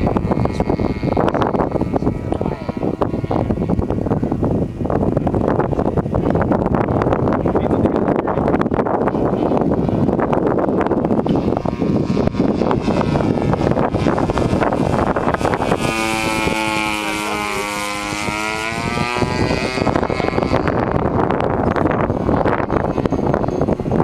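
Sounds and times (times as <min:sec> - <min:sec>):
model airplane drone passing: 0:00.0 - 0:24.0
wind buffeting microphone: 0:00.0 - 0:24.0.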